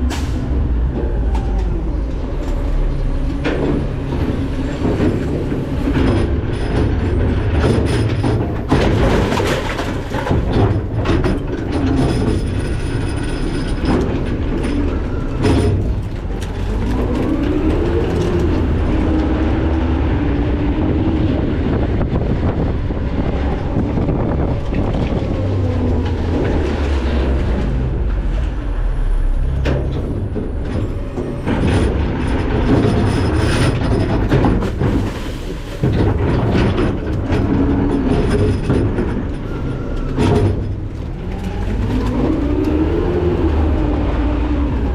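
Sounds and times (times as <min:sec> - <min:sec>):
diesel engine rising and falling: 0:00.0 - 0:44.9
metal clattering and rattling: 0:03.3 - 0:19.3, 0:29.4 - 0:42.8.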